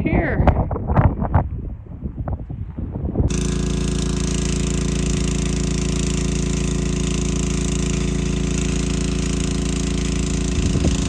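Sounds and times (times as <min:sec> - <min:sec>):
machine droning: 0:03.3 - 0:11.0.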